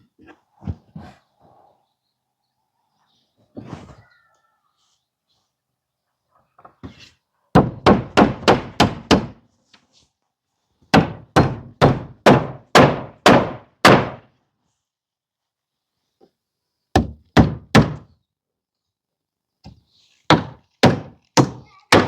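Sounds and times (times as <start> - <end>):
hammer driving nails into wood: 10.9 - 14.2.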